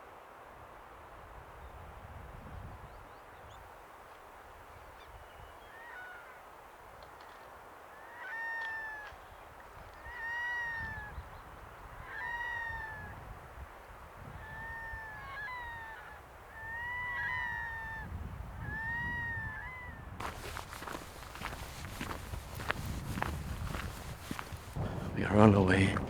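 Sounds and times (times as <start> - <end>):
bird calling: 20.2 - 24.8.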